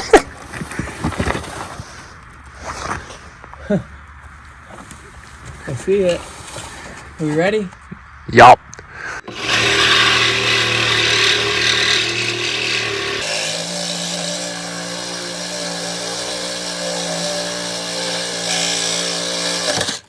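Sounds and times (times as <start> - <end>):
power saw cutting metal pipe: 9.2 - 20.0.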